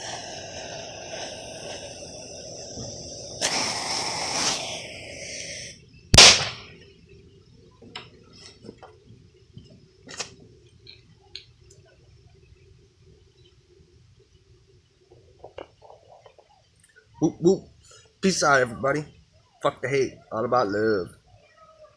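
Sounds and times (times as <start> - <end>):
firework fuse hissing: 0.0 - 7.6
firework bang: 2.7 - 4.8, 6.1 - 6.8
small ticks and pops: 8.8 - 12.6, 15.0 - 17.1.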